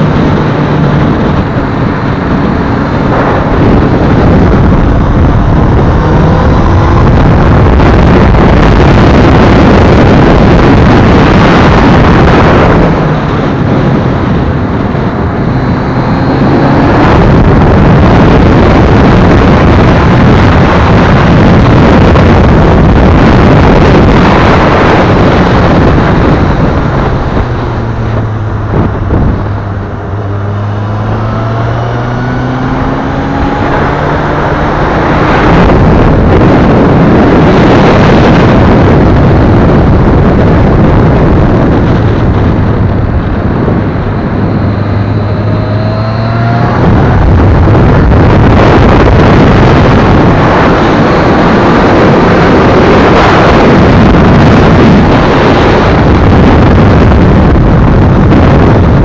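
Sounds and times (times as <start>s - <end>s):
motorcycle engine revving: 0.0s - 59.0s
wind rush on microphone: 0.0s - 59.0s.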